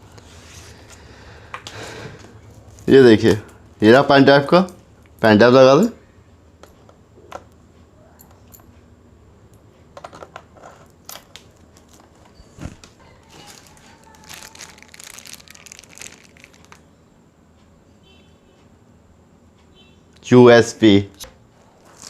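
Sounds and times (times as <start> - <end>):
plastic crinkling: 11.1 - 16.9, 21.7 - 22.0.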